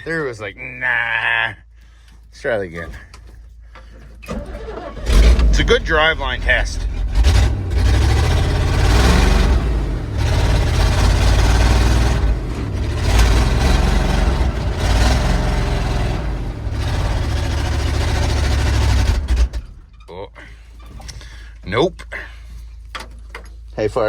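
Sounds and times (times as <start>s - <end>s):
truck engine revving: 4.4s - 20.0s.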